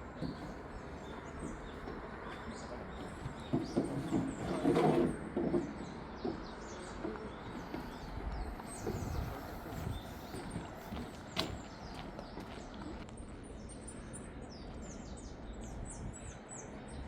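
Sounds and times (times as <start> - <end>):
small birds chirping: 0.0 - 4.7, 5.5 - 17.0
footsteps on wooden boardwalk: 0.0 - 13.0.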